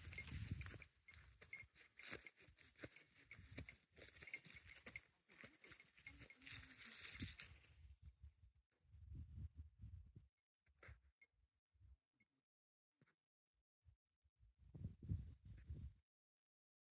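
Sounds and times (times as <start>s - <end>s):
light clinking: 0.0s - 7.5s
footsteps on trail: 0.0s - 7.8s.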